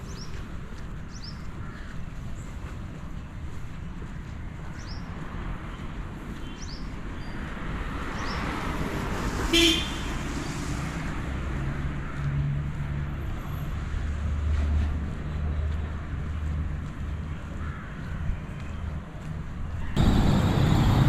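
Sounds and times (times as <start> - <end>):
road traffic rumble: 2.3 - 21.0
short vehicle horn beep: 9.5 - 10.0
passing vehicle engine hum: 20.0 - 21.0.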